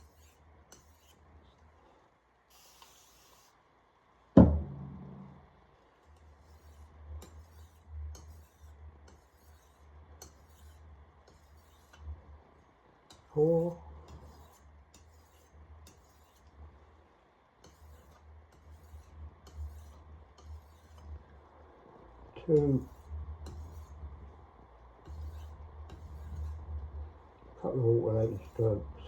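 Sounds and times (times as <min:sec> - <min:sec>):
knife scraping on whetstone: 0:00.0 - 0:01.2, 0:06.1 - 0:12.1, 0:13.1 - 0:16.6, 0:17.6 - 0:21.2, 0:22.6 - 0:24.0, 0:25.0 - 0:26.7
low steady hum: 0:04.4 - 0:06.1, 0:21.0 - 0:29.0.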